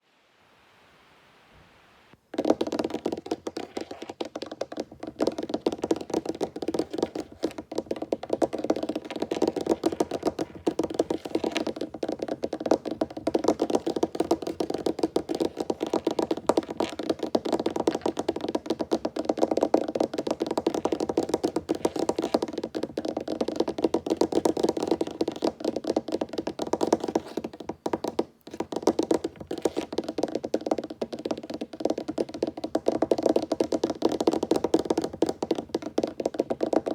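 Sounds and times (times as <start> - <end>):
fingers tapping on wooden table: 2.4 - 36.9.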